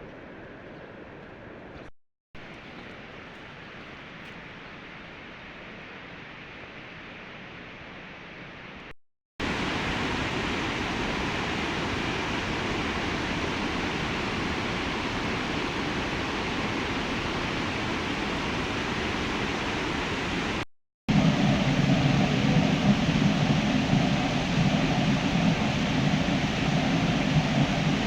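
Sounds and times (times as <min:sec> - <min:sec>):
water rushing: 0:09.4 - 0:28.0.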